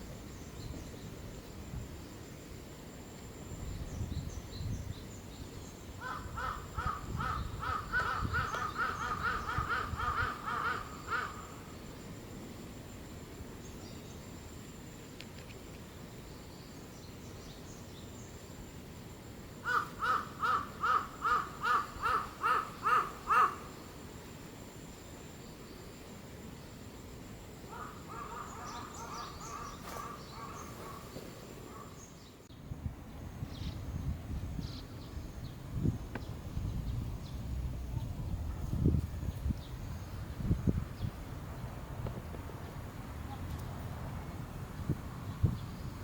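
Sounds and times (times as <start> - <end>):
bird calling: 6.0 - 11.8, 19.6 - 23.8, 27.7 - 32.5.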